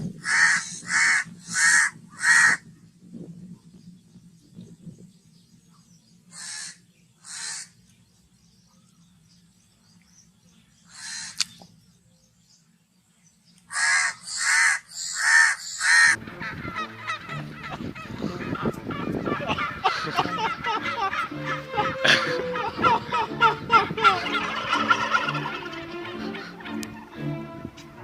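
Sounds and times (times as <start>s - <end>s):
crow cawing: 0.2s - 2.6s, 6.3s - 7.8s, 10.9s - 11.4s, 13.7s - 26.6s.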